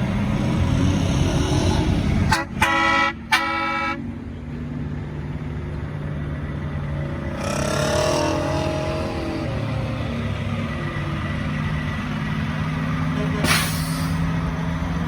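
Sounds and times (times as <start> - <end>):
vehicle accelerating: 0.0 - 2.6, 5.4 - 15.0
diesel engine running: 0.0 - 15.0
truck horn blasts: 2.2 - 4.1, 7.4 - 10.0, 13.1 - 14.2.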